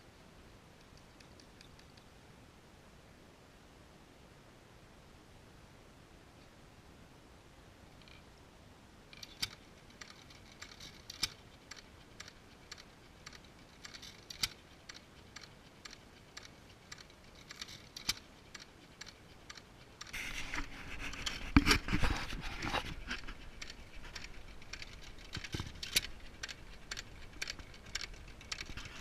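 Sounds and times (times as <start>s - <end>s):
engine clicking when hand-turned: 23.1s - 29.0s.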